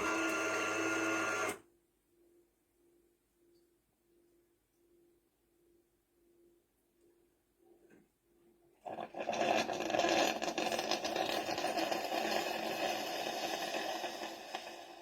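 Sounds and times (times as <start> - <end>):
coffee machine whirring and rattling: 0.0 - 1.6.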